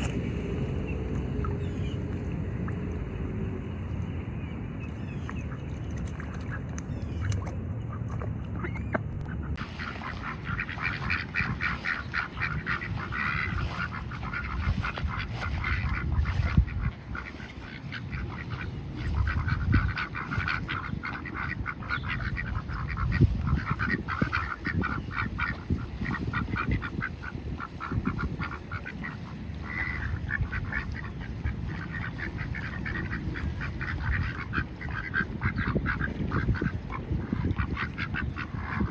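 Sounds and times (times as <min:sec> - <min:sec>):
low rumble: 0:00.0 - 0:17.2
ducks quacking: 0:00.0 - 0:38.9.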